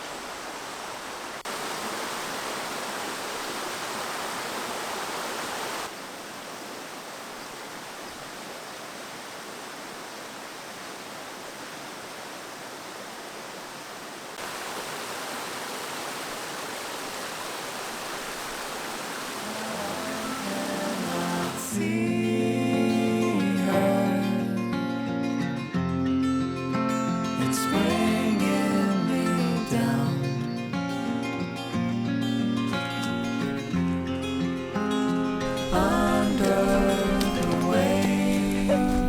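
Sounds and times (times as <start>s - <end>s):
stream water rushing: 0.0s - 24.4s, 32.7s - 39.0s.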